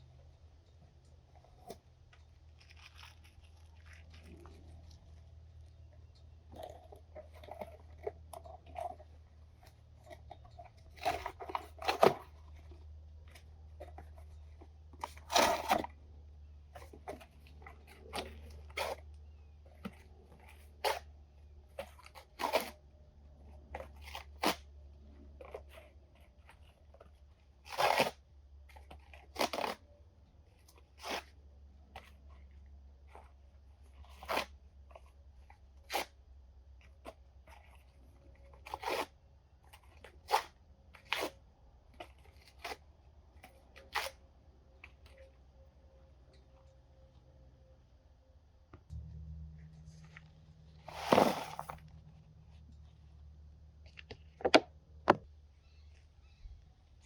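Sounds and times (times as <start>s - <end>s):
crunching and tearing in compost bin: 1.5s - 27.0s, 27.6s - 29.9s, 30.7s - 32.2s, 33.9s - 35.1s, 36.9s - 41.4s, 49.7s - 52.4s
steady low rumble: 48.9s - 50.9s.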